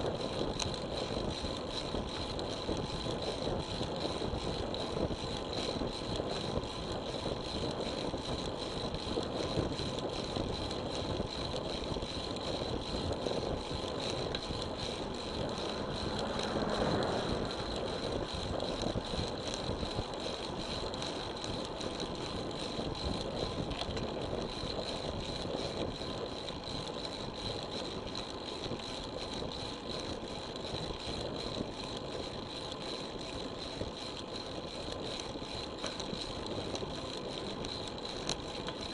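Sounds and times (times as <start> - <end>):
rushing wind: 7.3 - 23.7
road noise: 12.4 - 23.0.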